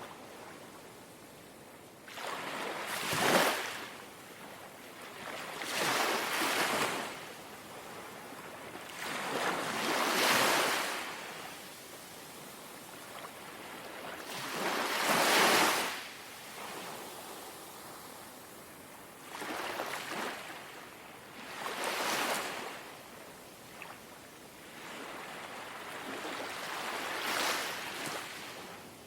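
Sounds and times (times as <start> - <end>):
small sea waves lapping: 2.1 - 11.5, 19.2 - 20.8, 24.6 - 28.8.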